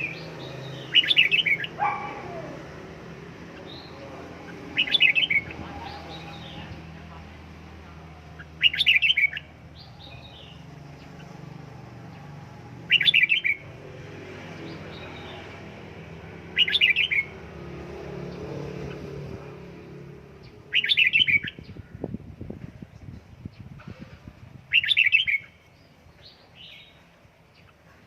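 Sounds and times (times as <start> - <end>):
bird warbling song phrases: 0.0 - 2.7, 3.4 - 7.2, 8.0 - 11.4, 12.9 - 13.6, 16.4 - 17.4, 20.4 - 22.2, 23.0 - 27.9.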